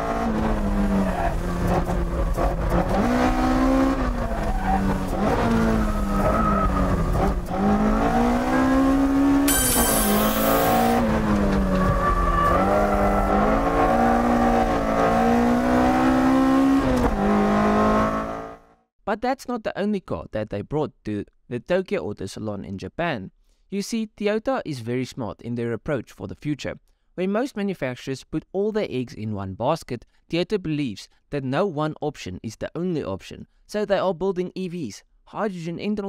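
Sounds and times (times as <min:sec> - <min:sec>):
car engine revving: 0:00.0 - 0:18.6
brief high-pitched squeal: 0:09.5 - 0:11.0.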